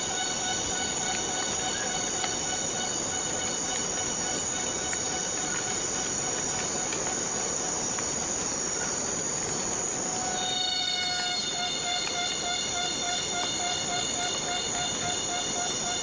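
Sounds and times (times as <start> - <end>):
insects chorus with high tones: 0.0 - 16.0
faint ticks: 1.0 - 2.4.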